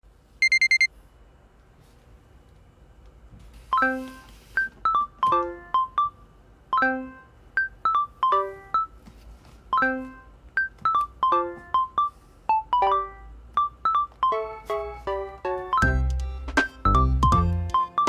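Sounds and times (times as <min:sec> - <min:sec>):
light plucky tune: 0:15.4 - 0:18.0.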